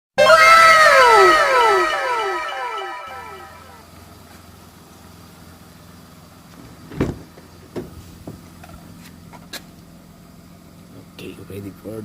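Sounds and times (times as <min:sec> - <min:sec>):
vehicle engine idling: 0:03.6 - 0:12.0
thump: 0:06.9 - 0:07.2.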